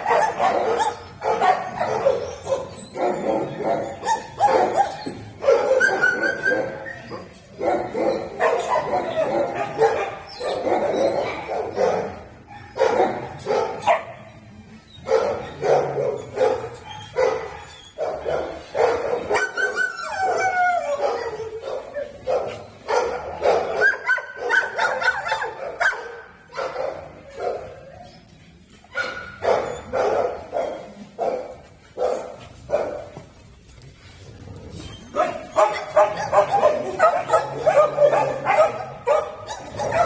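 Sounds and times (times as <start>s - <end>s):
dogs whining: 0.0s - 11.8s, 13.8s - 22.9s, 34.4s - 40.0s
dogs barking and yipping: 0.0s - 33.4s, 34.4s - 40.0s.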